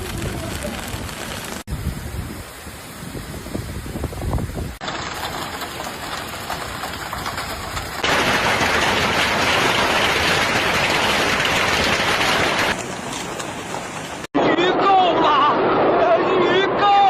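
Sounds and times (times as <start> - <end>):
hail and heavy rain pounding: 0.0 - 1.7, 4.8 - 14.3.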